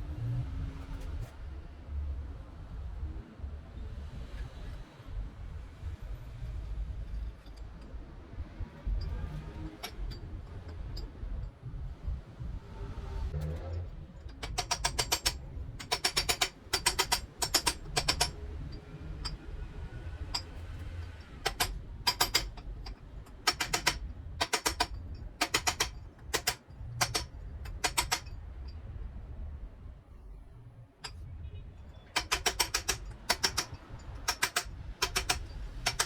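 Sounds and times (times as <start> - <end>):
rapid metallic ratchet clicks: 9.0 - 11.1, 13.4 - 18.4, 19.1 - 19.4, 20.3 - 28.4, 32.0 - 36.0.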